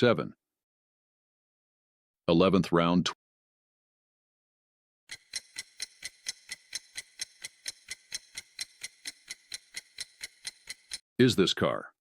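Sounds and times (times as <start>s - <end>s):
clock ticking: 5.1s - 11.0s.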